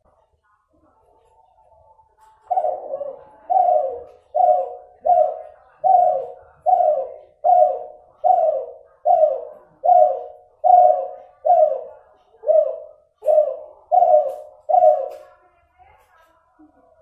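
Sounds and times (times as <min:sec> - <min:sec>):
dove cooing: 0:02.2 - 0:15.3.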